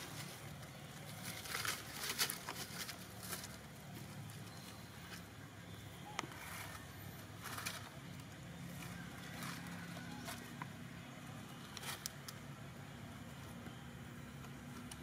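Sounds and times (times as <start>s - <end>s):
rustles: 0.0s - 12.7s.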